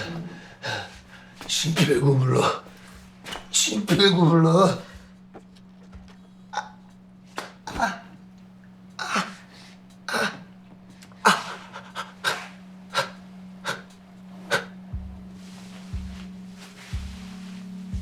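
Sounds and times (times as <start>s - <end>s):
man panting: 0.0s - 5.4s, 9.0s - 16.3s
faint steady hum: 0.0s - 18.0s.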